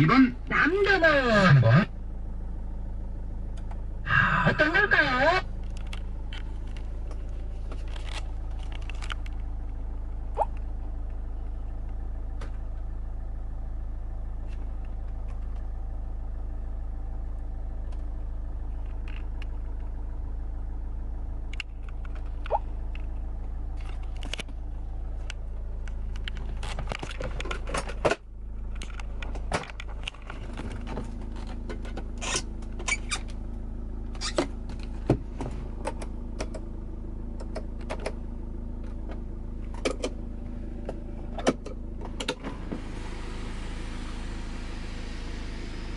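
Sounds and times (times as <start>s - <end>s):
car engine idling: 0.0s - 45.9s
clicks and rattles of car parts: 5.6s - 9.6s, 21.5s - 33.4s, 34.1s - 36.7s, 37.3s - 38.2s, 38.8s - 40.2s, 40.8s - 42.5s.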